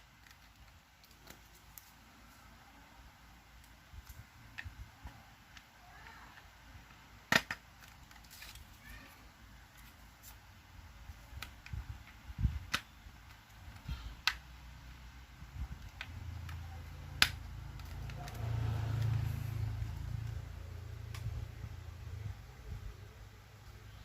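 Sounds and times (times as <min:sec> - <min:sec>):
plastic parts clicking together: 0:00.1 - 0:02.0, 0:06.8 - 0:08.8, 0:11.1 - 0:14.6, 0:15.7 - 0:19.2.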